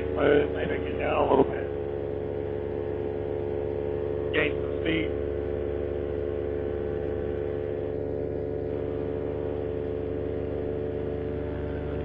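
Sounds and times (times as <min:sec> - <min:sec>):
paramotor engine droning: 0:00.0 - 0:12.0.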